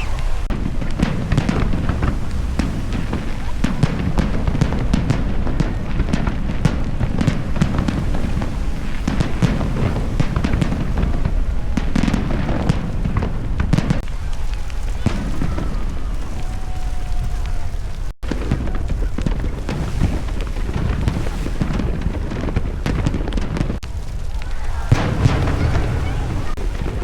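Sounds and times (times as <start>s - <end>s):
faint firework whistle: 0.0s - 5.8s, 13.8s - 21.6s
fireworks bangs and crackles: 0.0s - 27.0s.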